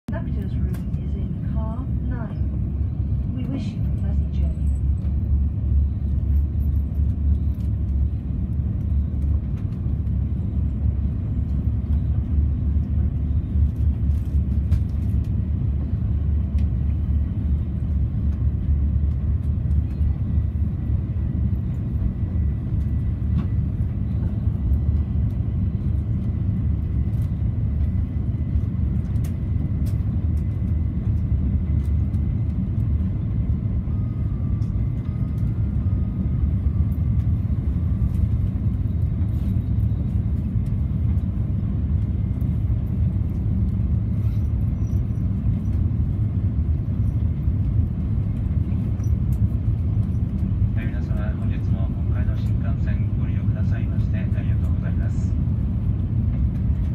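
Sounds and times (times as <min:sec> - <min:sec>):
train cabin low rumble: 0:00.0 - 0:56.9.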